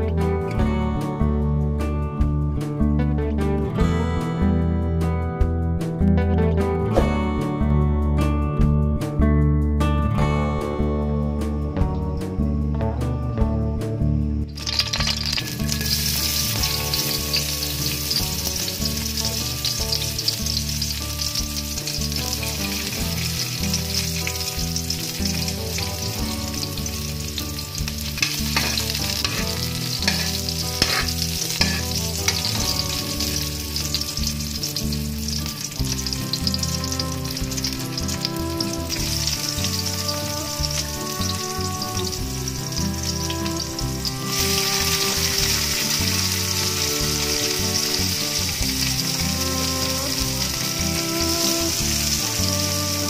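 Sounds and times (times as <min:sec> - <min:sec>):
onion sizzling in hot oil: 0:14.5 - 0:53.0
metal spatula scraping a wok: 0:14.6 - 0:19.7, 0:28.0 - 0:34.0.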